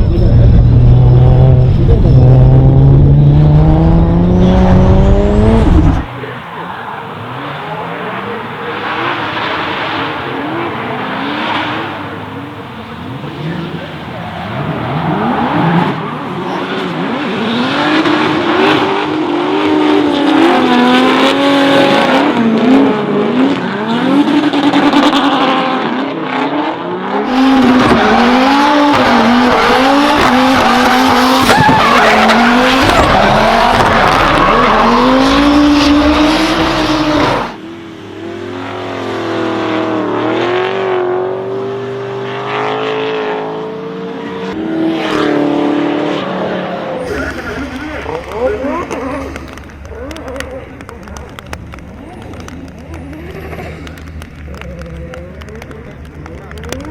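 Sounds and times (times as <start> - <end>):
car engine revving: 0.0 - 56.9
tyres screeching: 27.3 - 37.6.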